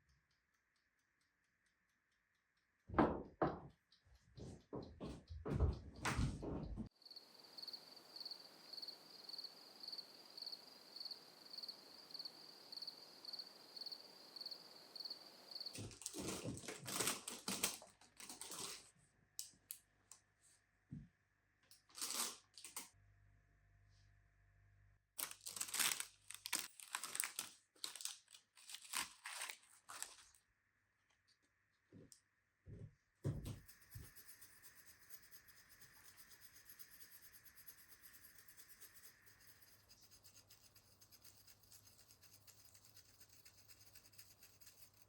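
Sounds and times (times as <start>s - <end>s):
crinkling and rustling: 15.8s - 18.9s, 21.8s - 22.9s, 25.2s - 30.4s.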